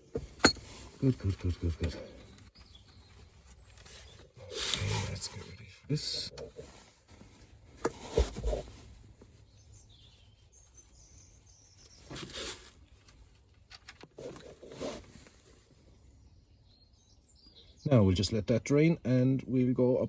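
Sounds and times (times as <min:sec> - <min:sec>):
scraping and handling noises: 0:00.0 - 0:09.5, 0:11.8 - 0:15.7.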